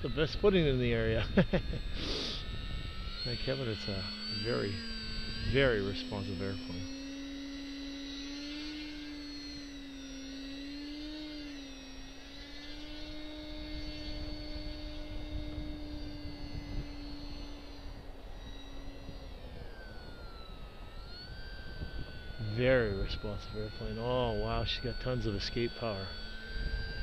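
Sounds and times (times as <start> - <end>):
model plane motor whining: 0.0 - 27.0
wind buffeting microphone: 13.0 - 27.0.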